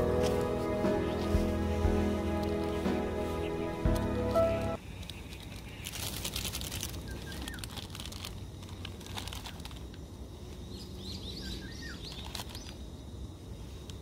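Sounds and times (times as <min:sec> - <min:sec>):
packaging rustling crackle: 0:05.0 - 0:10.0, 0:12.0 - 0:12.8.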